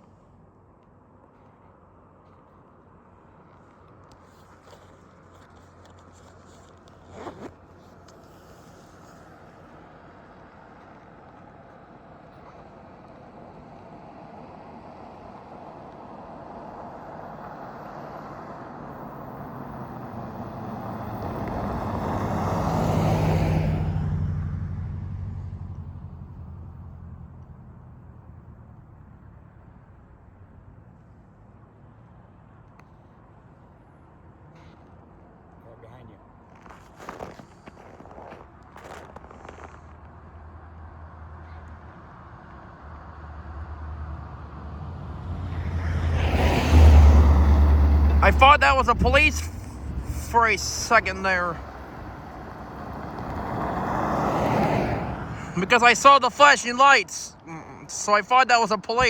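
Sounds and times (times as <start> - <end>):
road noise: 0.0 - 59.0
road vehicle engine hum: 0.0 - 59.0
vehicle passing close by: 16.2 - 28.3, 40.5 - 57.8.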